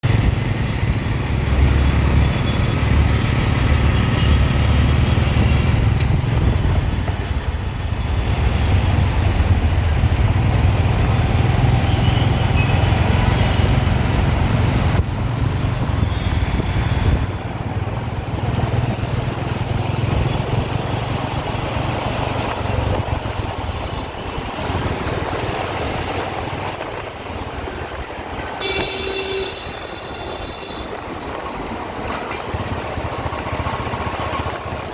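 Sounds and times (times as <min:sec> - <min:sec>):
engine and wind rumble: 0:00.0 - 0:34.9
vehicle horns: 0:28.6 - 0:31.1.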